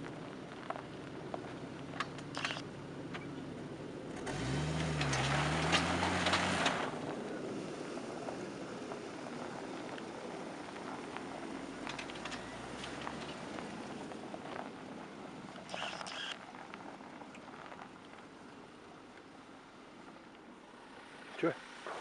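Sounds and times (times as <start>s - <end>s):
vehicle engine revving: 1.2s - 17.0s
rush of noise: 20.9s - 22.0s.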